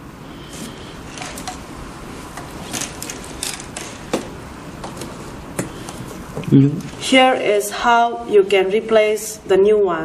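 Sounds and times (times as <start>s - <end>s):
steady background hiss: 0.0s - 10.0s
tools clicking on small parts: 2.6s - 4.0s.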